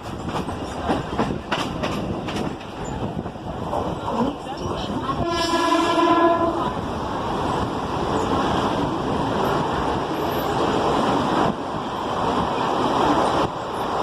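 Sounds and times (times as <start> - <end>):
train rumbling along track: 0.0 - 14.0
train horn: 5.1 - 6.8.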